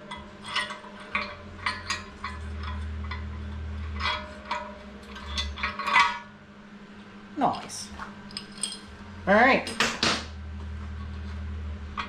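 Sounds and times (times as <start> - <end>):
low hum: 0.0 - 12.0
metal parts clinking on workbench: 8.3 - 8.9.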